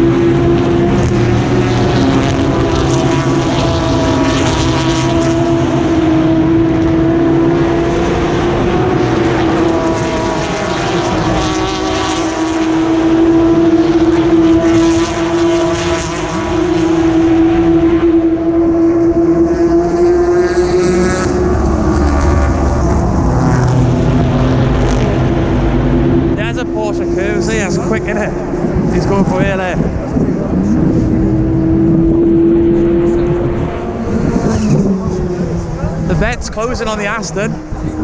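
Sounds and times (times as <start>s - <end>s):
race car engines passing: 0.0s - 38.0s
steady droning tone: 0.0s - 38.0s.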